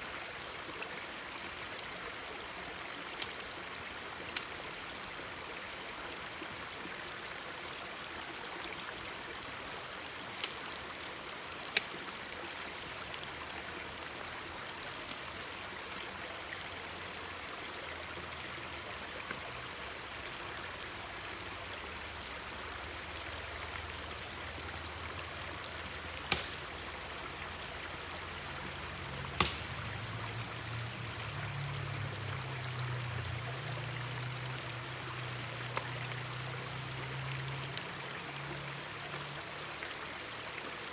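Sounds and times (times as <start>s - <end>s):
stream flowing: 0.0s - 40.9s
campfire popping and cracking: 11.5s - 12.0s, 25.1s - 31.1s.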